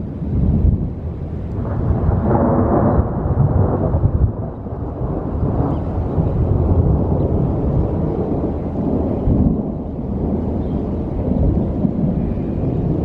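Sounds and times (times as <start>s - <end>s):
rolling thunder rumble: 0.0s - 13.0s.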